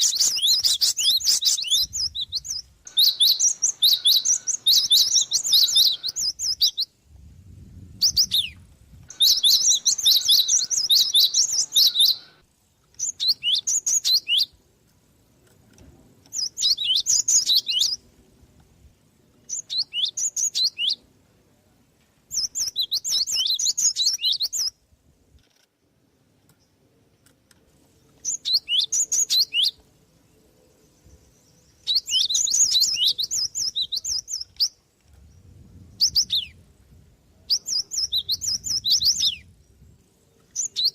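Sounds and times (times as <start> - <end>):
sparrow chirping: 0.0 - 6.9, 7.9 - 14.6, 16.2 - 18.1, 19.4 - 21.0, 22.3 - 24.7, 28.1 - 36.6, 37.4 - 40.9.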